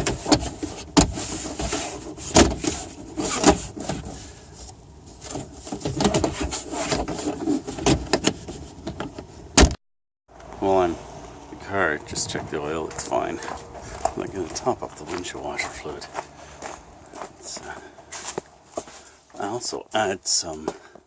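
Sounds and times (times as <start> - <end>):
rubbing and clattering: 0.0 - 9.4.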